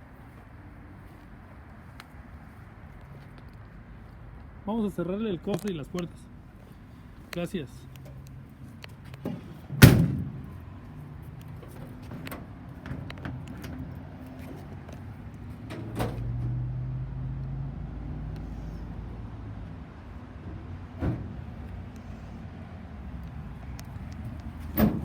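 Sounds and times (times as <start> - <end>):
thump: 9.3 - 10.6, 21.0 - 21.4, 24.7 - 25.0
heavy metal door slam: 9.7 - 10.6, 24.7 - 25.0
latch clicks and knocks: 24.4 - 25.0.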